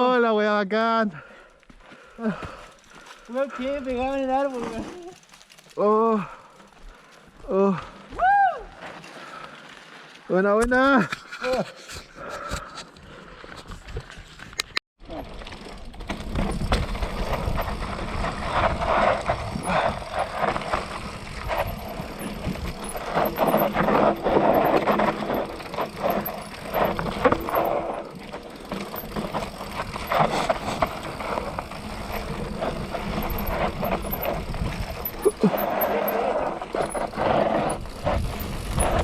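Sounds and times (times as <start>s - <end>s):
bike tyres on dirt and rocks: 0.0s - 39.0s
bike chain and frame rattling: 2.2s - 7.2s, 15.0s - 39.0s.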